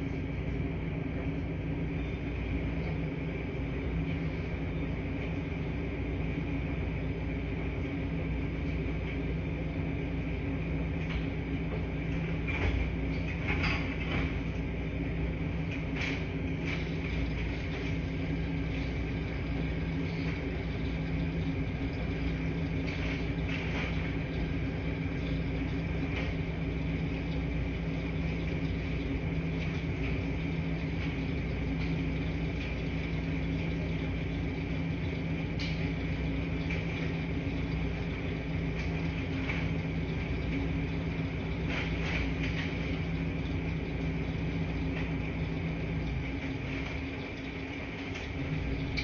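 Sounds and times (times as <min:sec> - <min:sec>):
washing machines humming: 0:00.0 - 0:49.0.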